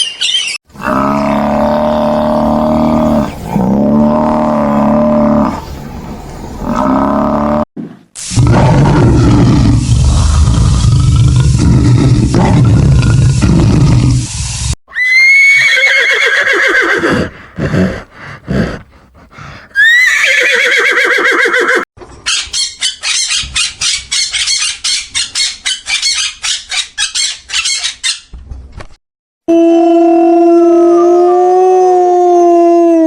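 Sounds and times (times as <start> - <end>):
horse whinnying: 14.9 - 17.3, 19.8 - 21.8.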